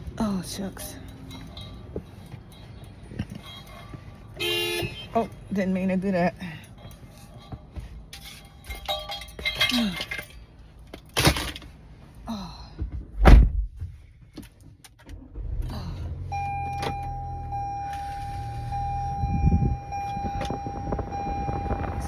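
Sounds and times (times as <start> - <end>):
car door thunk: 13.2 - 13.9
car engine starting and idling: 13.2 - 22.0.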